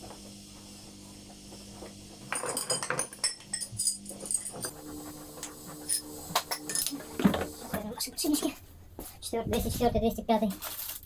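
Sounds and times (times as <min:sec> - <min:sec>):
steel parts clinking and rattling: 0:02.3 - 0:04.7.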